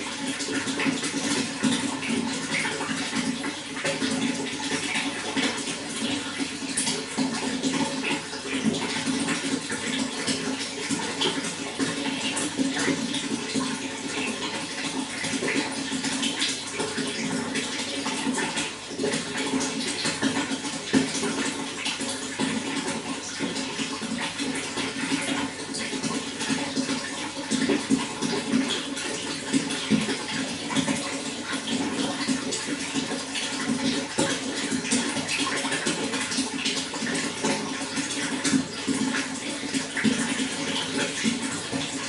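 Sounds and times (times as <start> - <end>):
running water splashing: 0.0 - 42.0.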